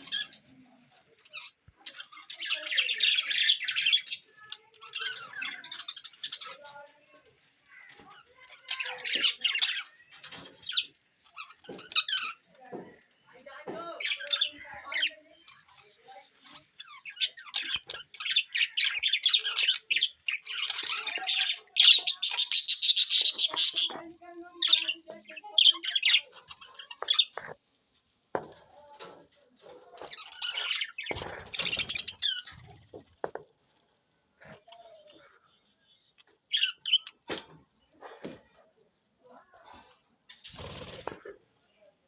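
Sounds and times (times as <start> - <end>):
budgerigars chattering: 16.9 - 24.1.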